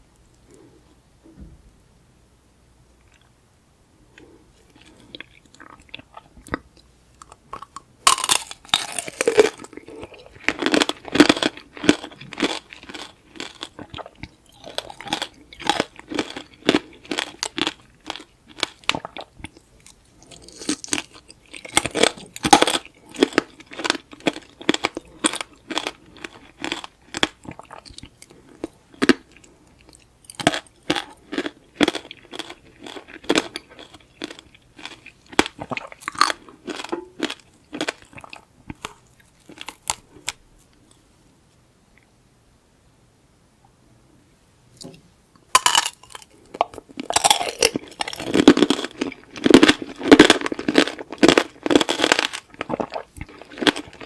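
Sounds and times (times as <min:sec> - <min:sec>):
chewing: 0:04.1 - 0:41.0, 0:45.6 - 0:54.0
candy shell crunching: 0:07.2 - 0:40.4, 0:45.5 - 0:54.0.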